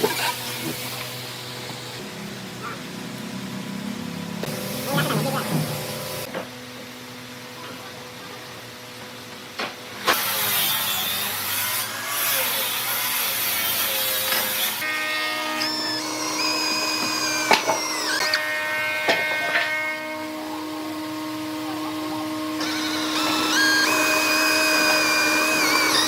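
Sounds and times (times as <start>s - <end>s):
power tool cutting wood: 0.0s - 2.1s, 4.4s - 6.4s, 10.0s - 26.0s
high motor whine: 14.6s - 26.0s.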